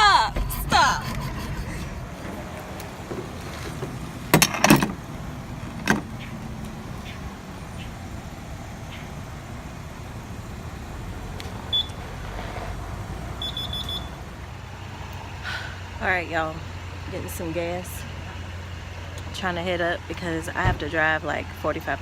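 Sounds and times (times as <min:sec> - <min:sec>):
car engine idling: 0:00.0 - 0:22.0
car warning chime beeping: 0:02.2 - 0:12.1, 0:13.4 - 0:14.3.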